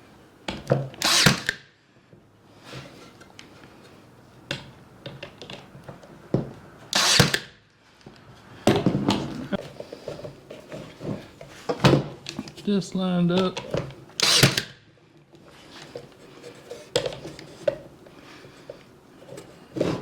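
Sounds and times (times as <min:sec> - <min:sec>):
nail gun shots: 0:01.0 - 0:01.6, 0:06.9 - 0:07.6, 0:14.2 - 0:14.8.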